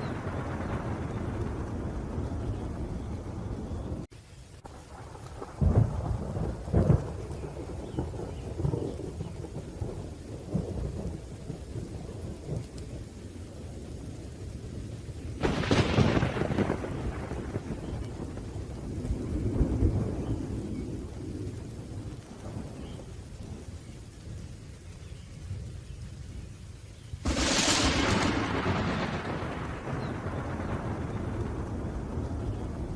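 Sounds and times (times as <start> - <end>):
sharp thunderclap: 0.0 - 4.0, 4.6 - 11.2, 15.4 - 23.6, 27.2 - 32.9
low rolling thunder: 0.0 - 26.6, 27.2 - 32.9
rain: 0.0 - 32.9.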